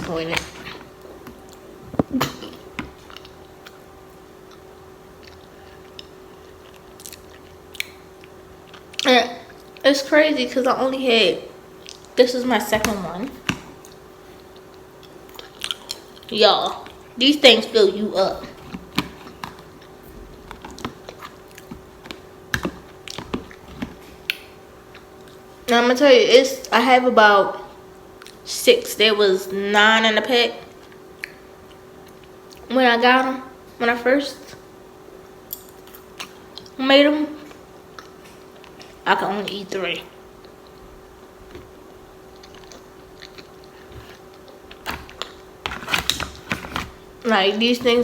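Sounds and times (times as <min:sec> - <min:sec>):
faint steady hum: 0:00.0 - 0:48.0
wet chewing mouth clicks: 0:04.4 - 0:09.8, 0:42.3 - 0:45.4.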